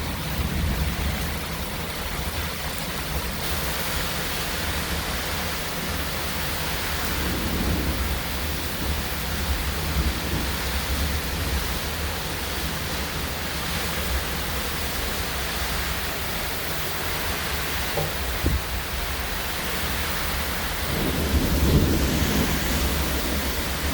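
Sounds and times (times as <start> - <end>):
heavy rain: 0.0 - 23.9
strong wind: 4.4 - 16.8, 17.4 - 23.9.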